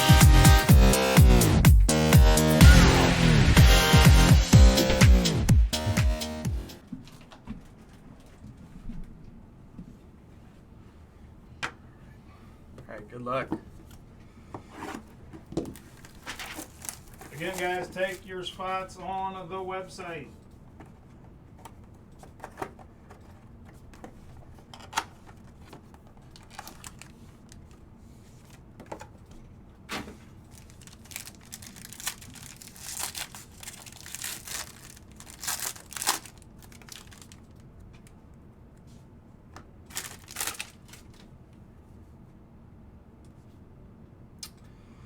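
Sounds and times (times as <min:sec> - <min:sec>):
wrappers tearing and crinkling: 0:15.9 - 0:18.2, 0:26.3 - 0:27.7, 0:30.4 - 0:37.6, 0:39.9 - 0:41.2
cards clicking and rustling: 0:30.6 - 0:38.1, 0:39.9 - 0:41.3.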